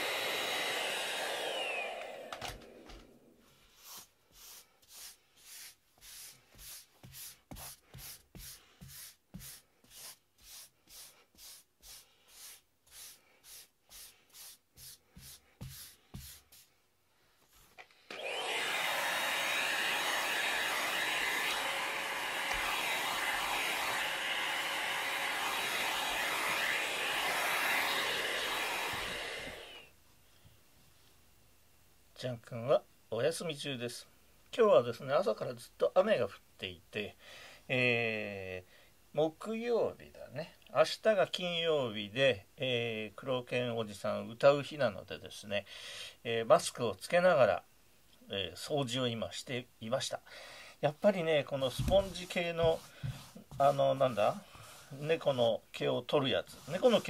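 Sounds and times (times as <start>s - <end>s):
vacuum cleaner running: 0.0s - 3.4s, 18.1s - 29.9s
rubber sponge scrubbing carpet: 3.5s - 16.7s, 51.7s - 55.3s, 56.4s - 57.0s.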